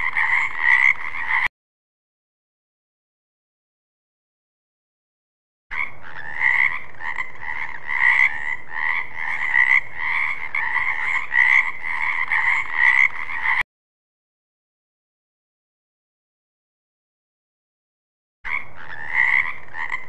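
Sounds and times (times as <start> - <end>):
frog croaking: 0.0 - 1.5, 5.7 - 13.6, 18.5 - 20.0.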